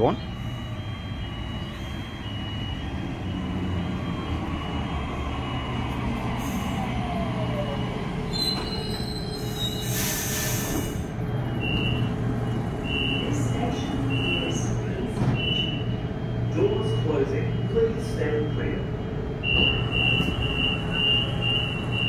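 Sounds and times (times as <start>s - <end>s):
electric train slowing: 0.0s - 22.0s
air hissing: 9.4s - 11.0s
high beep: 19.4s - 22.0s.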